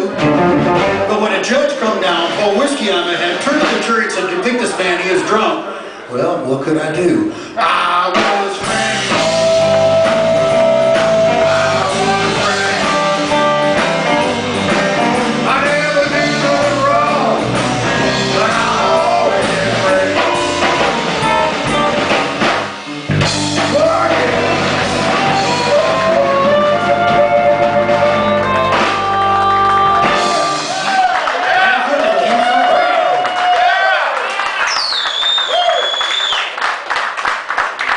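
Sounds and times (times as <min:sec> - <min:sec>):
blues-rock band playing: 0:00.0 - 0:04.4, 0:08.1 - 0:31.2.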